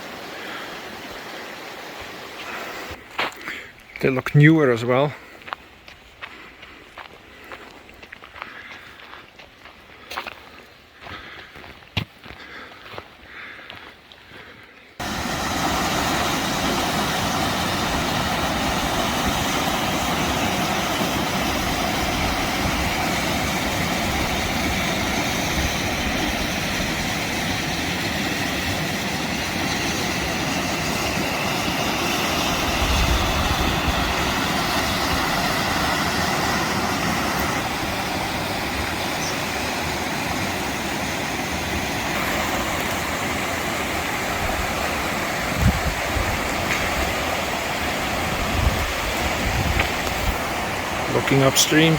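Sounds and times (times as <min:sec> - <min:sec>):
river water rushing: 0:00.0 - 0:03.0, 0:15.0 - 0:51.9.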